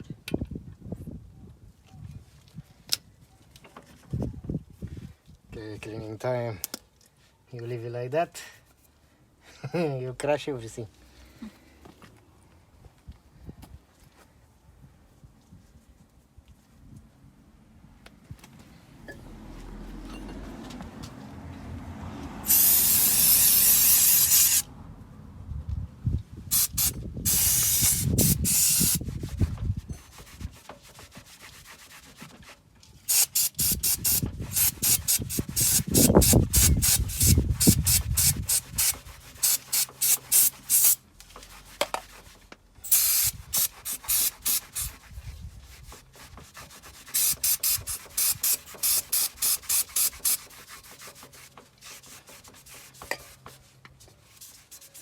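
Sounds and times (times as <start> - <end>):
aerosol spray hiss: 22.4 - 24.6, 26.5 - 29.0, 42.9 - 44.9, 47.2 - 50.4
hand scrubbing strokes: 27.3 - 55.0.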